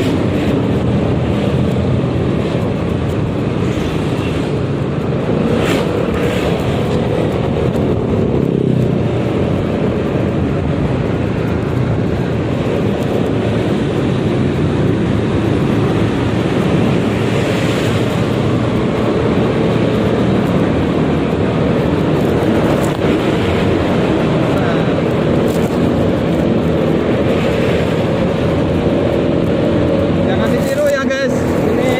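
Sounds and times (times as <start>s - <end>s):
wind rushing over microphone: 0.0s - 31.9s.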